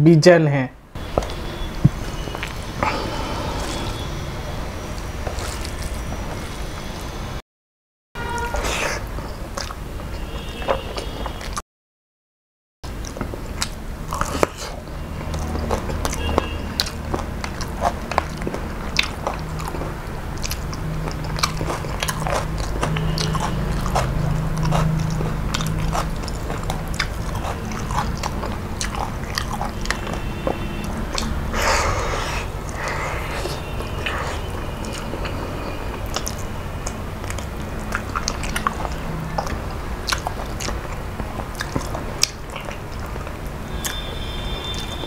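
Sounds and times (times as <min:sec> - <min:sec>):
person chewing with mouth clicks: 0:02.3 - 0:04.0, 0:04.9 - 0:06.0, 0:08.6 - 0:09.8, 0:13.0 - 0:45.0.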